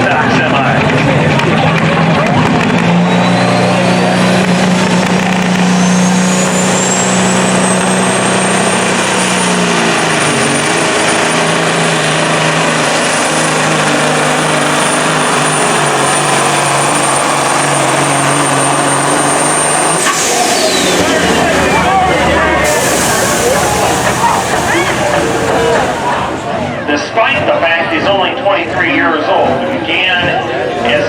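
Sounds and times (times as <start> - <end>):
diesel truck engine under load: 0.0 - 31.0
high whine: 2.2 - 27.0.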